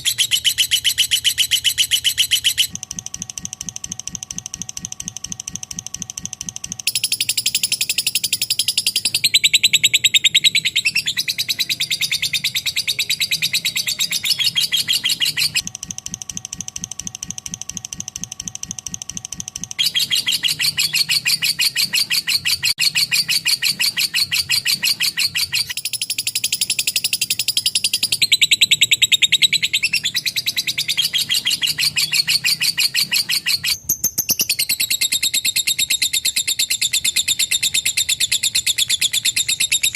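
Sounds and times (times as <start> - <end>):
lovebird fast chattering trill: 0.0 - 39.9.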